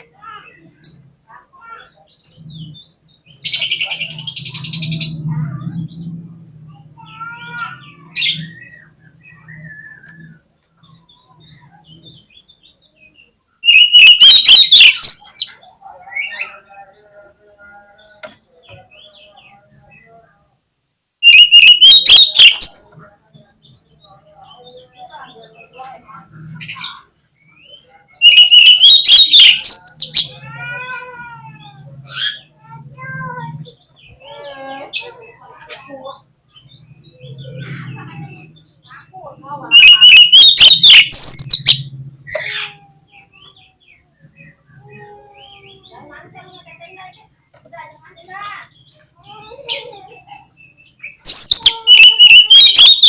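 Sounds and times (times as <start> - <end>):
bird singing: 7.0 - 20.4, 21.2 - 53.0.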